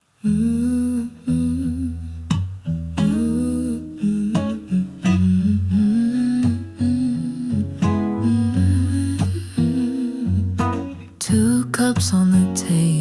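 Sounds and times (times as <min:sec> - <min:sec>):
person humming: 0:00.2 - 0:02.1, 0:03.0 - 0:10.6
plucked acoustic guitar: 0:00.2 - 0:13.0.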